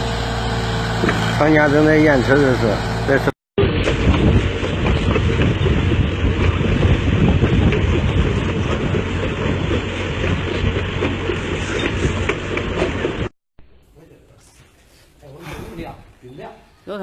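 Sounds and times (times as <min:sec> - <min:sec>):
heavy machine rough rumble: 0:00.0 - 0:13.3.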